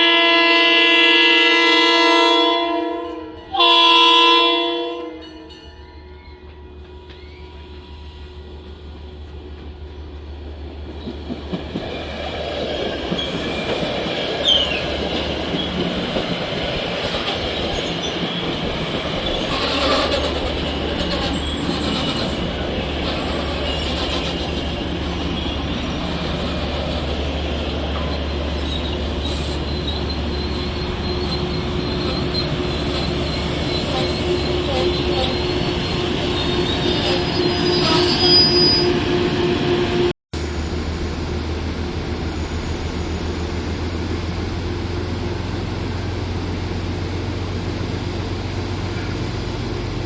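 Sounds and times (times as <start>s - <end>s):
train rumbling past: 0.0s - 50.0s
train wheel squeal: 5.2s - 41.4s.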